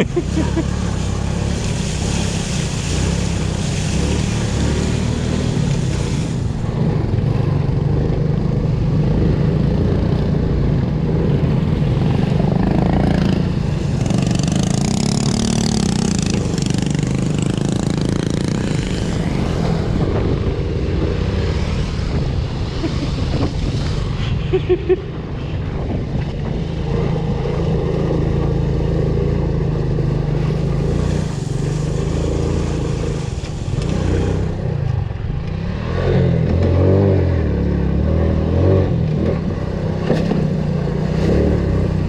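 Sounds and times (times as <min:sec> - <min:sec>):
motorcycle engine running: 0:00.0 - 0:22.9.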